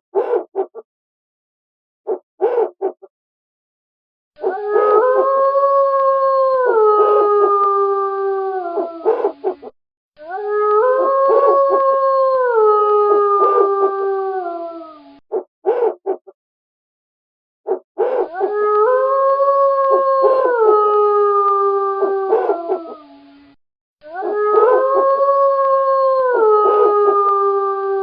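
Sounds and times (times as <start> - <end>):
wolf howling: 4.4 - 16.2, 17.7 - 23.4, 24.0 - 28.0.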